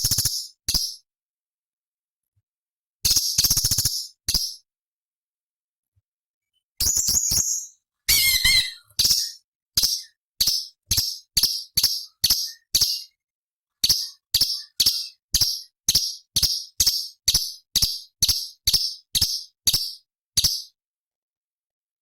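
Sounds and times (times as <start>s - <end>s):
small bird calling: 6.8s - 13.2s, 13.8s - 20.6s.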